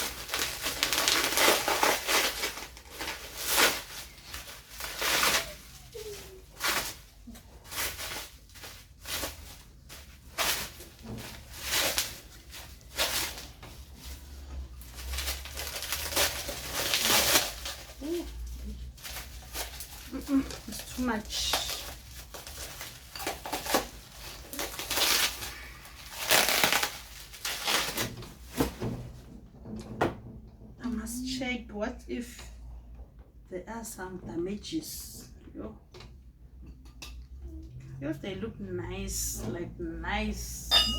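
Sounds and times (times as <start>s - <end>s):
packaging rustling and crinkling: 0.0s - 28.8s.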